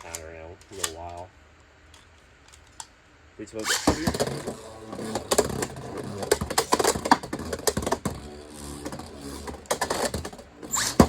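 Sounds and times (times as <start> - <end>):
spinning top whir: 3.6 - 11.0.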